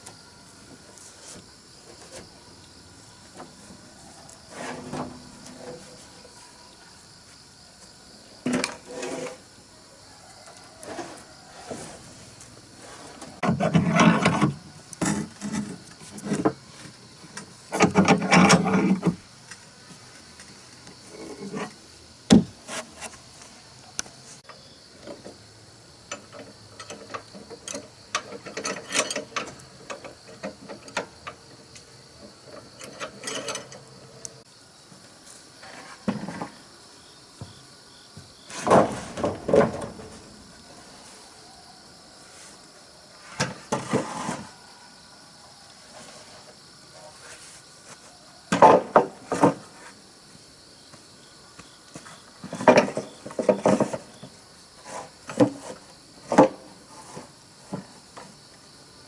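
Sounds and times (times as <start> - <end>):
wood scraping: 3.3 - 6.4, 8.4 - 9.5, 10.5 - 19.2, 19.9 - 23.6, 26.1 - 34.5, 35.2 - 36.6, 38.5 - 41.3, 43.2 - 44.6, 45.9 - 50.0, 51.9 - 58.4.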